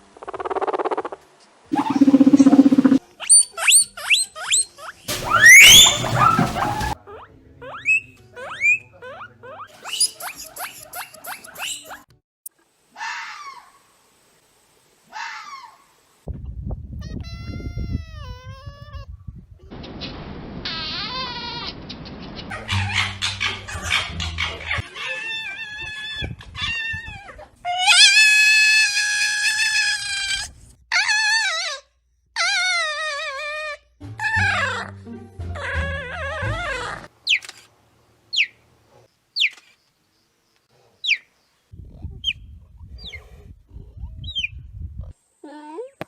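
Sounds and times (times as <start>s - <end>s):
animal crying high-pitched: 1.8s - 3.0s, 5.1s - 7.0s, 25.2s - 31.8s, 32.4s - 34.8s
hoarse animal calls: 1.8s - 3.0s, 5.1s - 7.0s
guinea pig squealing: 1.8s - 12.0s, 27.8s - 31.8s.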